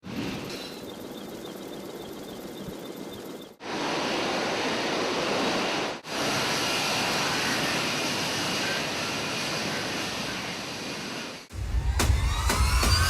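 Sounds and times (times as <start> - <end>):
jet fighter engine roar: 3.6 - 11.5.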